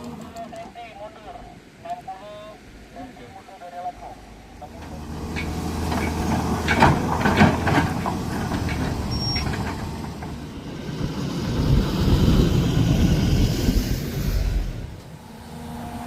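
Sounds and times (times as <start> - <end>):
heavy diesel machinery running: 4.5 - 16.0
metal clanks: 5.3 - 10.4.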